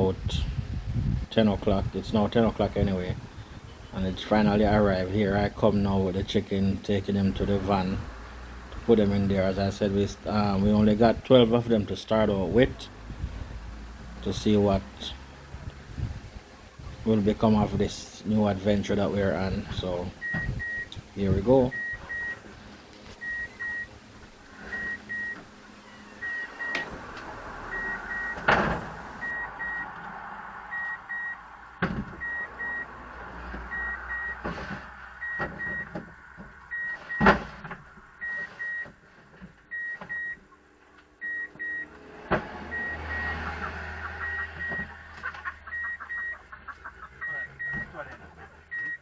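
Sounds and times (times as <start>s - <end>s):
electronic warning beeps: 20.1s - 22.5s, 23.2s - 24.0s, 24.6s - 27.0s, 27.6s - 29.9s, 30.7s - 31.4s, 32.2s - 32.9s, 33.7s - 34.4s, 35.2s - 35.9s, 36.7s - 37.3s, 38.2s - 38.9s, 39.7s - 40.4s, 41.2s - 41.9s, 42.7s - 43.4s, 44.2s - 44.9s, 45.6s - 46.5s, 47.2s - 47.9s, 48.7s - 49.0s
knocks and thumps: 31.8s - 32.3s.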